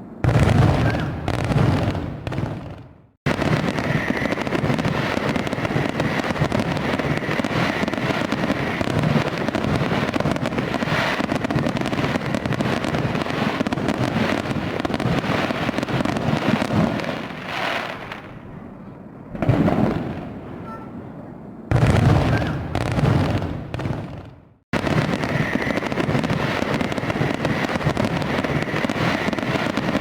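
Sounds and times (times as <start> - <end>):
fireworks crackling: 0.2 - 18.4, 21.7 - 30.0.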